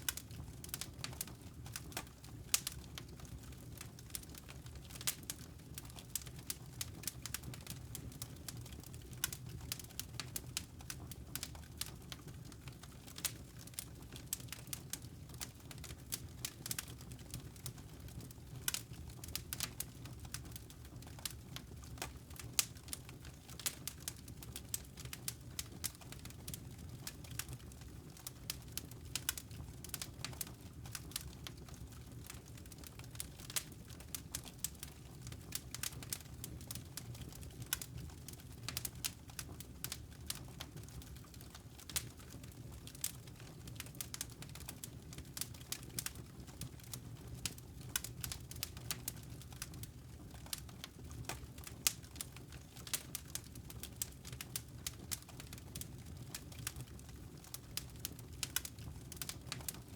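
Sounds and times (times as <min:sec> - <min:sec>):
low steady fire background: 0:00.0 - 0:59.9
fire pops and snaps: 0:18.6 - 0:59.9.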